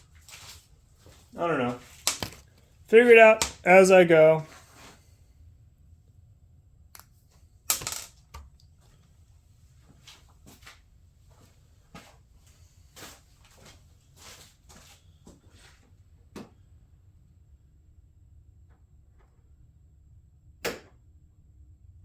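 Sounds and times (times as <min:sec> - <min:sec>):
plastic parts clicking and knocking: 0:02.0 - 0:02.7.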